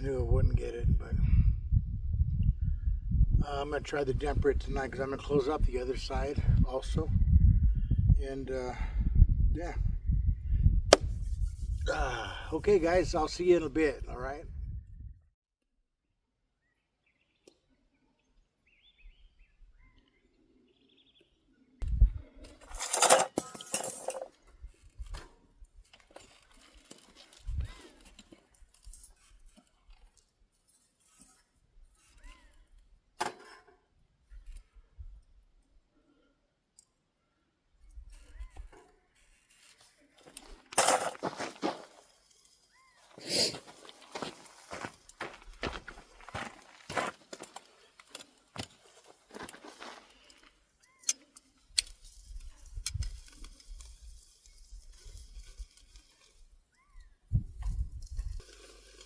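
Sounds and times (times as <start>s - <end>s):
small objects clicking and clinking: 22.7s - 24.4s.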